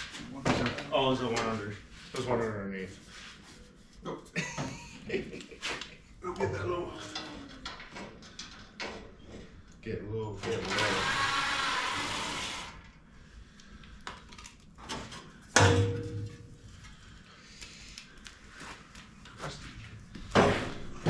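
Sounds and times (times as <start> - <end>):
metal clank ringing: 15.6 - 16.5.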